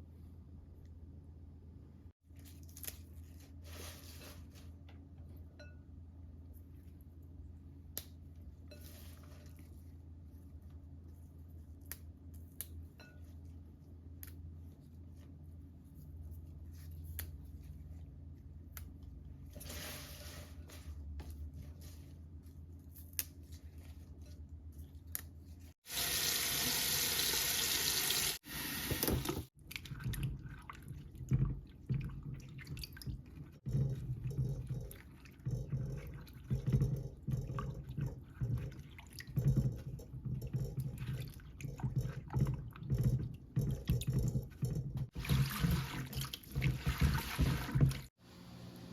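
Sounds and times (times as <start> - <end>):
tap running into sink: 28.7 - 29.5.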